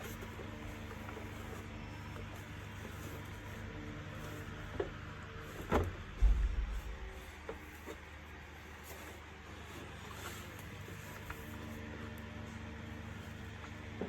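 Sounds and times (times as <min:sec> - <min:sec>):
steady low hum: 0:05.8 - 0:07.8
heavy low thud: 0:06.0 - 0:07.6.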